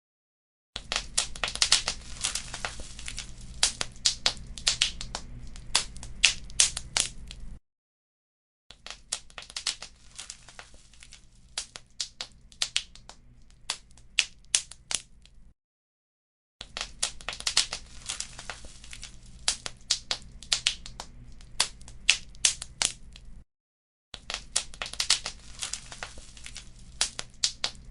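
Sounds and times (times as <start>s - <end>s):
wood fire crackling: 0.8s - 7.6s, 8.8s - 15.4s, 16.7s - 23.4s, 24.2s - 27.9s
low steady rumble: 1.0s - 7.6s.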